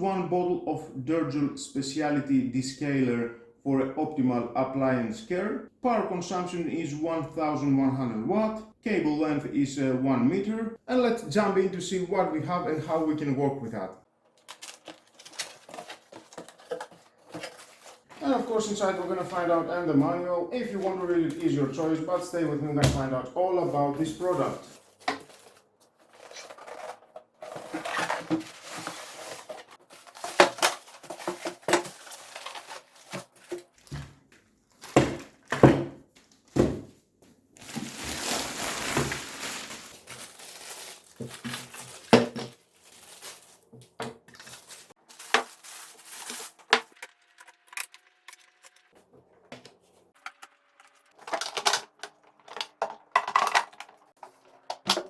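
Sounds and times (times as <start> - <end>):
packaging rustling and crinkling: 14.4 - 18.7, 24.2 - 35.6, 37.6 - 48.4, 51.0 - 54.9
knocks and clatter of parts: 25.0 - 34.2, 41.2 - 42.6, 51.2 - 55.0.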